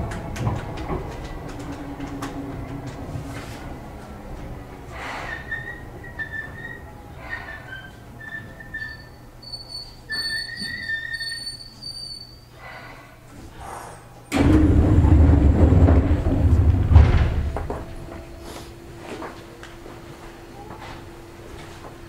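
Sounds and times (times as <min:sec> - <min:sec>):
loud rumbling rush of train: 0:00.0 - 0:07.4, 0:14.3 - 0:19.6
steady low hum: 0:13.0 - 0:22.0.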